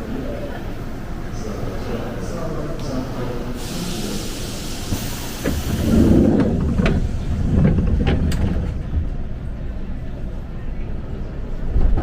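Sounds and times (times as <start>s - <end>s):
train rumble: 0.0s - 12.0s
hiss of air: 3.5s - 7.2s.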